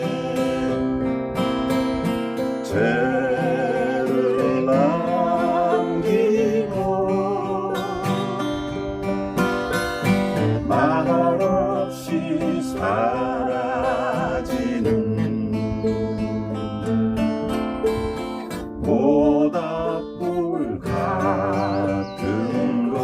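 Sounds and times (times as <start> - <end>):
acoustic guitar and ukulele strumming: 0.0 - 23.0
woman singing with vibrato: 2.7 - 8.7, 10.7 - 14.8.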